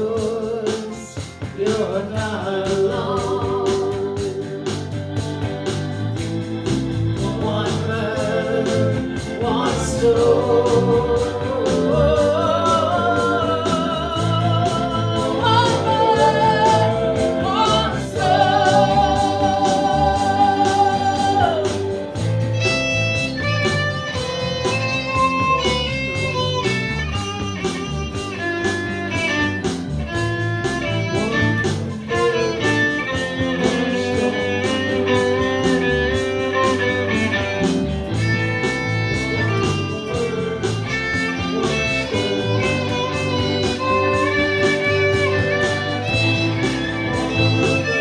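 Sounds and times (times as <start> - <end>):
steady drum beat: 0.0 - 48.0
guitar playing: 0.9 - 48.0
fiddle playing: 13.0 - 34.0, 41.2 - 48.0.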